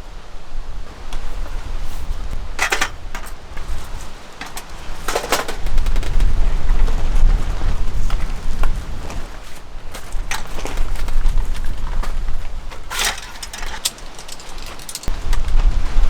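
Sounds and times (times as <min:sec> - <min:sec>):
wind buffeting microphone: 0:00.2 - 0:16.0
clattering knocks: 0:02.6 - 0:06.2, 0:12.7 - 0:15.2.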